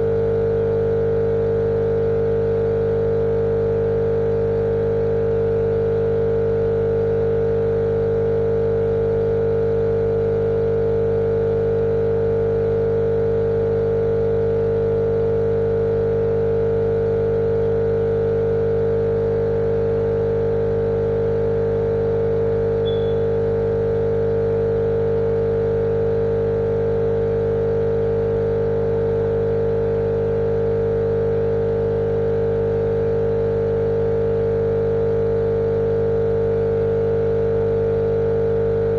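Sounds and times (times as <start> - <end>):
motor hum: 22.8 - 23.4.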